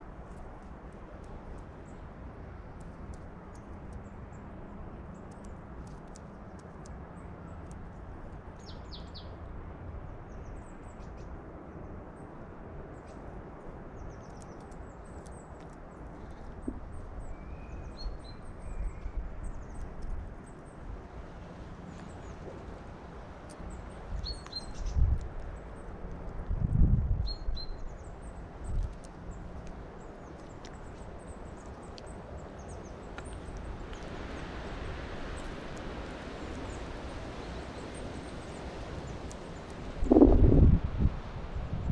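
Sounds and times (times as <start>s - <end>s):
outdoor background noise: 0.0s - 41.9s
small birds chirping: 1.2s - 9.4s, 13.9s - 26.1s, 27.2s - 40.3s.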